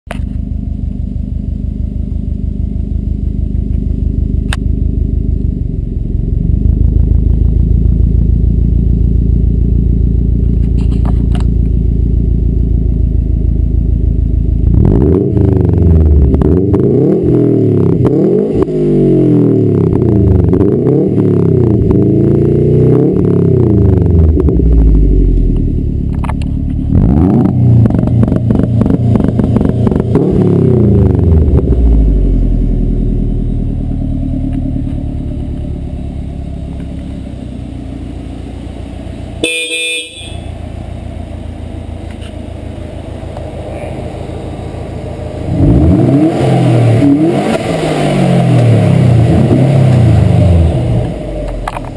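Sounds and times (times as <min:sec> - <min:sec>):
car engine revving and idling: 0:00.1 - 0:51.9
brief tone: 0:39.4 - 0:40.6.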